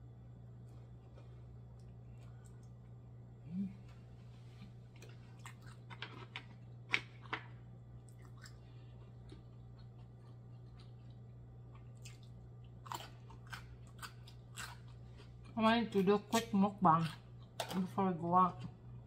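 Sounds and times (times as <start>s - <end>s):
steady low hum: 0.0s - 19.0s
soft chewing: 0.3s - 19.0s.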